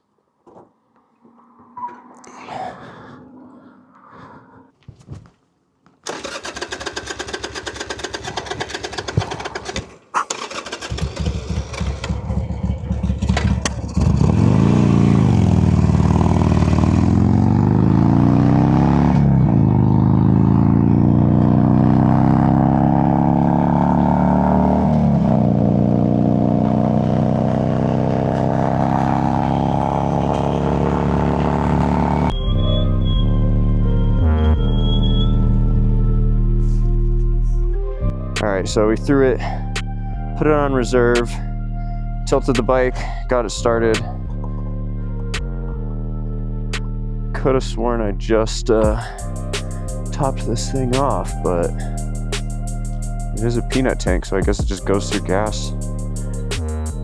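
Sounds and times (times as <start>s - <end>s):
motorcycle electric starter cranking: 6.0s - 12.4s
motorcycle engine revving: 6.1s - 32.3s, 48.8s - 57.0s.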